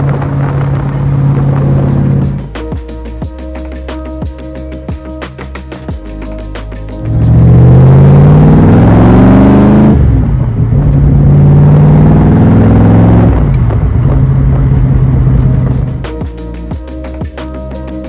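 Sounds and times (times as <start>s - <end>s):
loud car engine accelerating: 0.0s - 2.6s, 7.0s - 16.1s.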